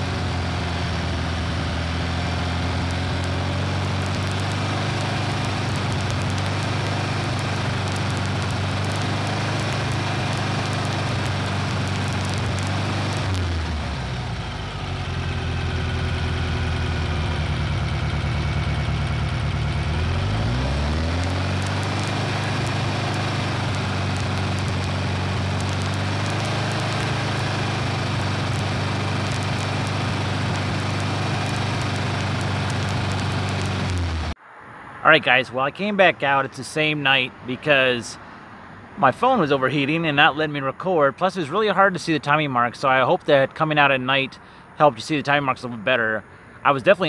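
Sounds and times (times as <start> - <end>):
car engine revving and idling: 0.0 - 34.4.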